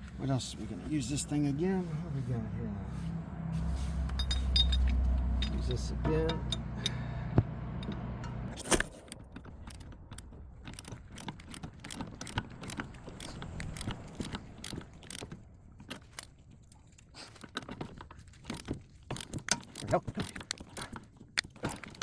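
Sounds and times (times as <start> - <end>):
low hum: 0.0 - 17.1
metal tools clinking: 3.6 - 7.1
sharp metallic clank: 4.1 - 7.1.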